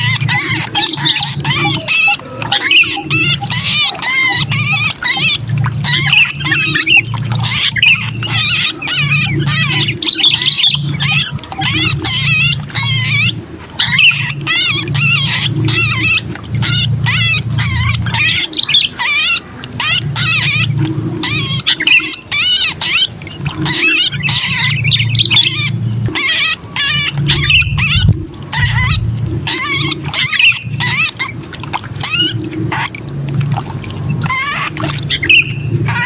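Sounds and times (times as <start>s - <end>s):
birds giving harsh distress calls: 0.0s - 36.0s
low rumble: 27.1s - 30.0s.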